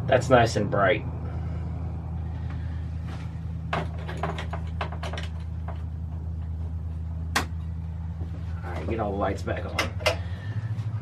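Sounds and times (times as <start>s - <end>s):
steady low hum: 0.0s - 11.0s
small clicks and knocks: 3.7s - 6.6s.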